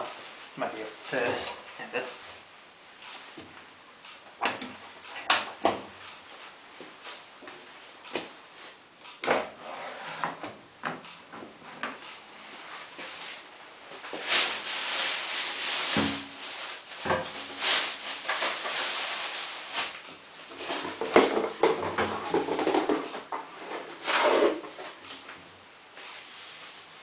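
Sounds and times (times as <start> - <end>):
curtain fabric rustling: 12.3 - 20.0.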